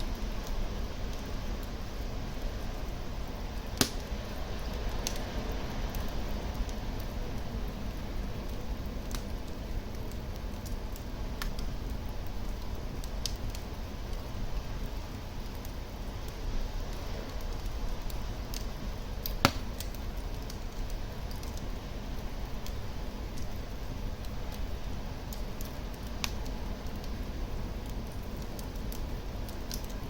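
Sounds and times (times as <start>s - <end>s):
fire crackles: 0.0s - 30.0s
wood fire rumbling: 0.0s - 30.0s
loud sharp pop: 19.4s - 19.7s.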